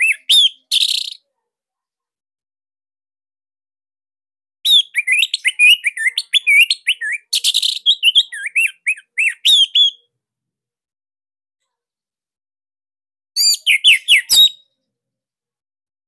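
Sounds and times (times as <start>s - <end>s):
thrush singing whistled notes: 4.7s - 10.0s, 13.4s - 14.7s.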